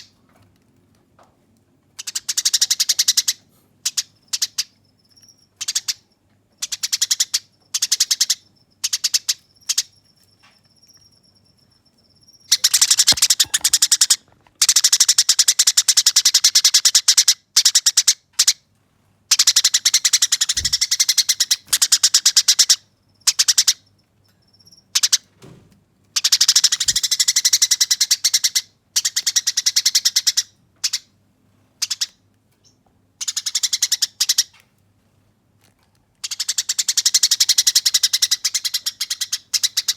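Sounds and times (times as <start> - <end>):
sparrow chirps: 2.0 - 14.2, 19.3 - 25.2, 26.2 - 31.1, 31.8 - 34.6, 36.2 - 39.9
sparrow rattling chatter: 12.5 - 14.2, 19.3 - 23.8, 26.2 - 30.3.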